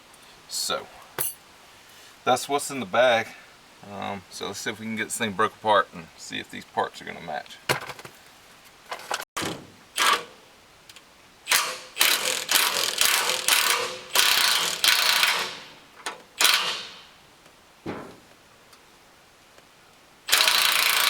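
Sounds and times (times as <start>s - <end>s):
ratchet wrench clicking: 11.5s - 15.6s, 16.4s - 17.0s, 20.3s - 21.0s.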